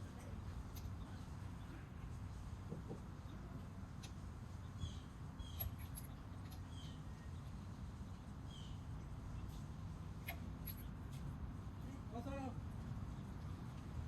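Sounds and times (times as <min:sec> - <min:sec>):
small bird chirping: 0:04.5 - 0:11.0.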